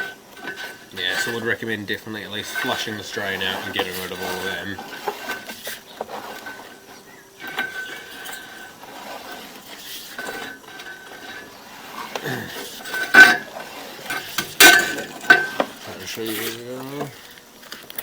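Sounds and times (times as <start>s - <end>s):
metal clinking and rattling: 2.3s - 18.0s
loud sharp metal clanks: 14.1s - 15.8s.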